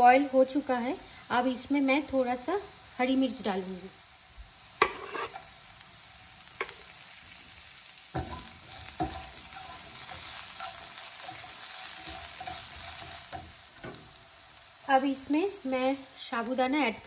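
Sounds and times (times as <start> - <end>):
potatoes sizzling in hot oil: 0.0 - 17.0
utensils knocking against pan: 8.2 - 14.1.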